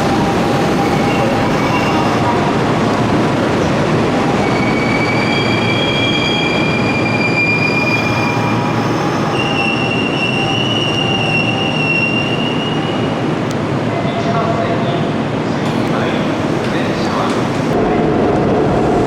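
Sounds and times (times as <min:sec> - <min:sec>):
train wheels rumbling on rail: 0:00.0 - 0:19.0
high-pitched wheel squeal: 0:04.4 - 0:13.1.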